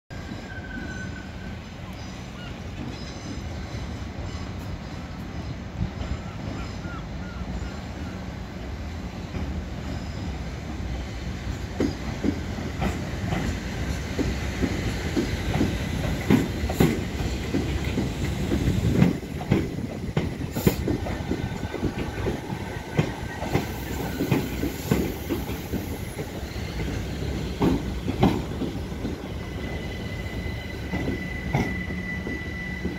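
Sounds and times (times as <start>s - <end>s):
train rumbling: 0.1s - 32.9s
high thin brake squeal: 0.2s - 5.0s, 29.4s - 32.9s
wheels clacking over rail joints: 11.3s - 32.9s.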